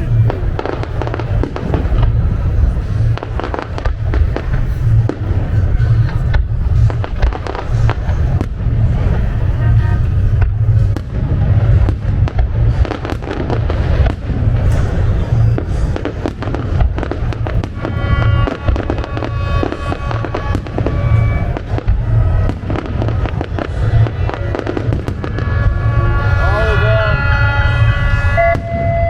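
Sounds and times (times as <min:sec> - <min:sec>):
deep booms: 0:00.0 - 0:29.0
fireworks bangs and crackles: 0:00.0 - 0:29.0
music: 0:00.0 - 0:29.0
steady pitched tones: 0:00.0 - 0:29.0.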